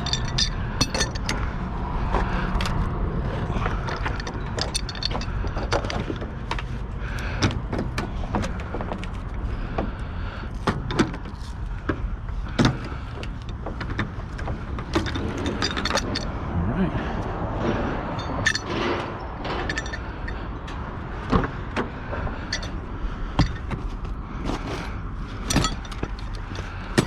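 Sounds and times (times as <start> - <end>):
hand tool clinking on metal: 0.0 - 1.5, 3.8 - 6.0, 14.9 - 16.3, 18.1 - 20.4, 22.4 - 22.8, 25.4 - 27.0
steady low rumble: 0.0 - 27.0.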